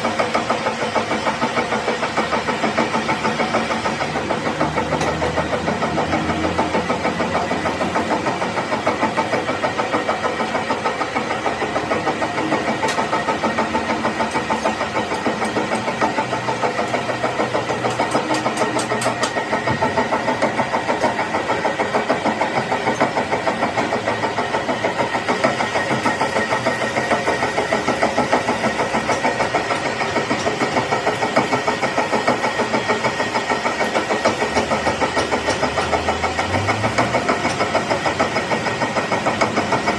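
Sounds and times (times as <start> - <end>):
metal lathe running: 0.0 - 39.9.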